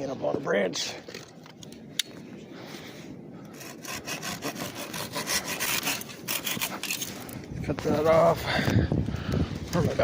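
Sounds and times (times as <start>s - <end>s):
hand saw cutting branch: 3.5s - 7.1s.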